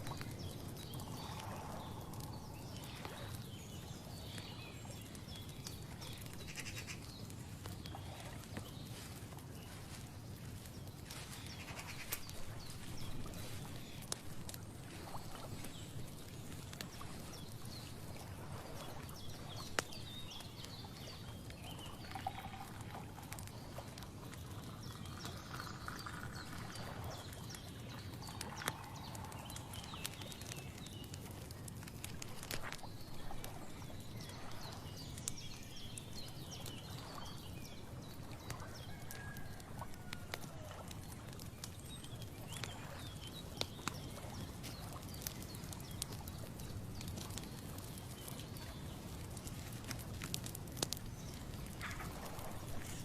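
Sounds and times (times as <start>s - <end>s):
animal calls and chirps: 6.3s - 7.1s, 11.2s - 13.6s.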